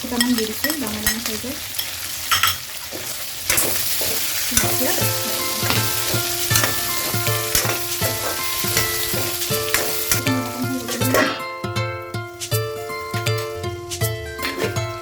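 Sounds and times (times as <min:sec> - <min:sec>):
chicken sizzling in hot oil: 0:00.0 - 0:15.0
spatula stirring: 0:00.3 - 0:15.0
plucked-string background music: 0:04.6 - 0:15.0.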